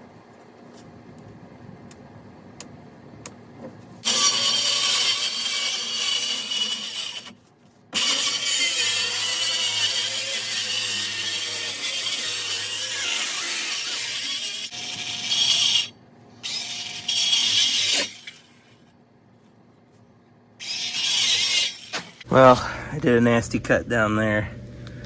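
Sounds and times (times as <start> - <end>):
power saw cutting: 4.0 - 7.4, 8.0 - 18.7, 20.6 - 22.3.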